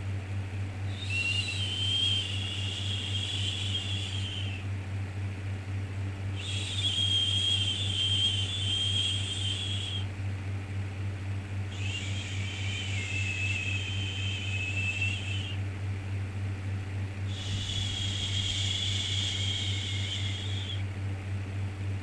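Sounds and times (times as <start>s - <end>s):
low hum: 0.9s - 4.6s, 11.6s - 15.6s, 16.5s - 21.0s.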